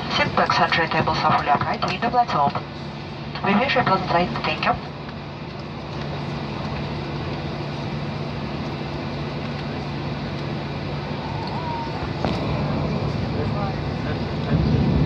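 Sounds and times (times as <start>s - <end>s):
jet engines heard inside cabin: 0.0s - 15.0s.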